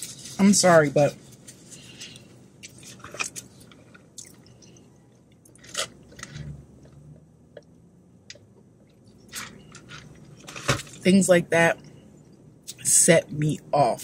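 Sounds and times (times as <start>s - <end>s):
chewing: 2.2s - 7.0s.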